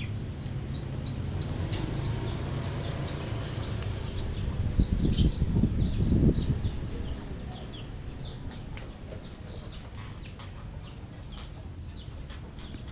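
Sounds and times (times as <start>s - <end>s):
bird calling: 0.0s - 6.6s.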